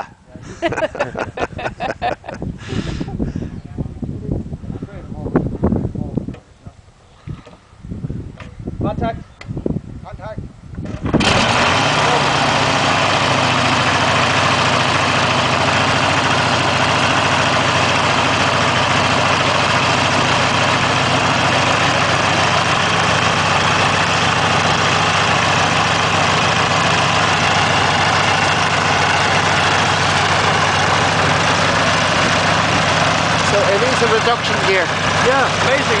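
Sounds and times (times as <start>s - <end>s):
aircraft engine running: 10.8s - 36.0s.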